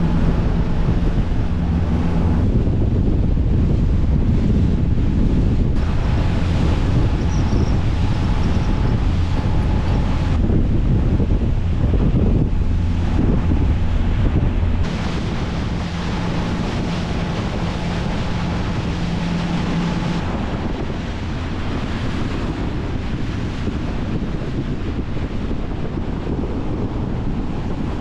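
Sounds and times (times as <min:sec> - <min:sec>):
low boat engine hum: 0:00.0 - 0:28.0
water rushing along hull: 0:00.0 - 0:28.0
wind buffeting microphone: 0:00.0 - 0:28.0.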